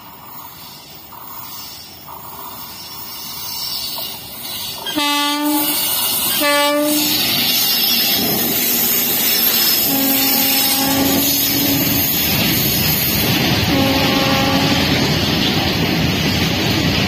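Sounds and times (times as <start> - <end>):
train wheels rumbling and clattering: 0.0 - 17.0
locomotive horn blasts: 4.9 - 7.2, 9.9 - 12.0, 13.7 - 15.0.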